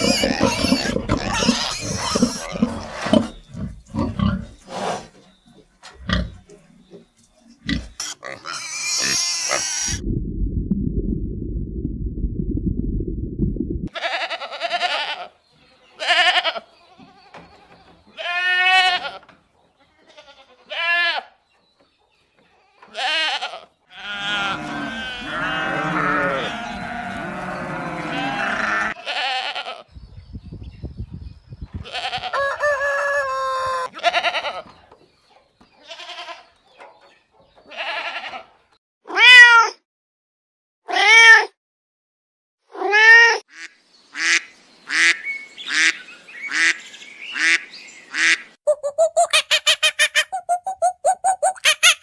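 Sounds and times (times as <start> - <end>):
animal bleats and meows: 13.9 - 19.3, 20.0 - 21.3, 22.7 - 29.9, 31.8 - 32.4, 33.6 - 34.7, 35.8 - 36.5, 37.7 - 39.8, 40.9 - 41.6.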